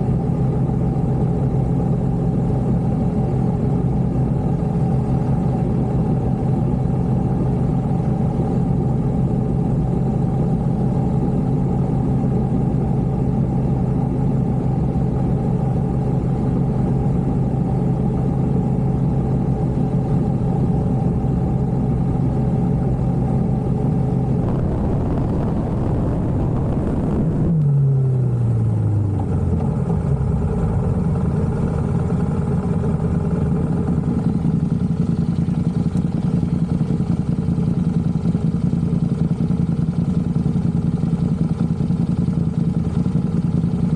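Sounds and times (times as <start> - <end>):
motorcycle engine running: 24.4 - 27.6
rush of noise: 24.4 - 27.6.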